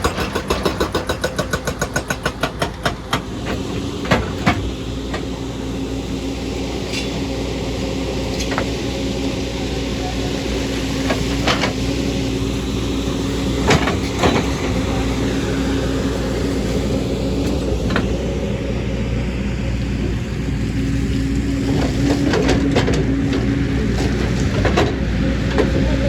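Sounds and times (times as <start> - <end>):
sharp knocks and clanks: 0.0 - 5.3
excavator diesel engine running: 0.0 - 26.0.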